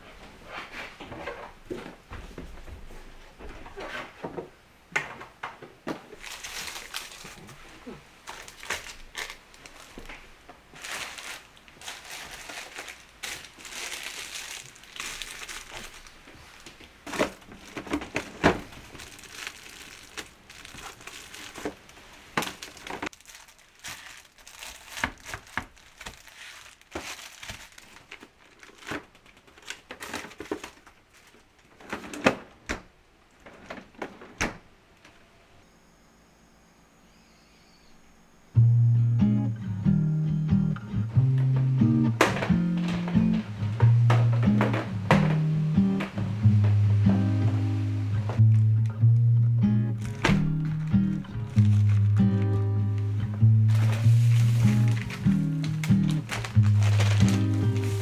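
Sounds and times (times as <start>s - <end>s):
plastic packaging crinkling: 5.9s - 32.5s, 48.4s - 58.0s.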